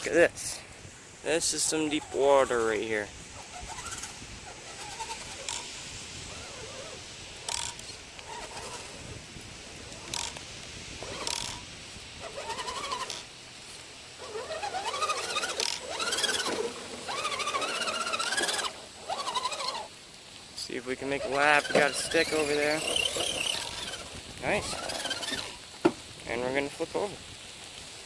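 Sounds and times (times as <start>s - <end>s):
electric motor whining: 1.4s - 9.1s, 11.0s - 11.6s, 12.2s - 13.3s, 14.2s - 20.0s, 21.0s - 26.0s.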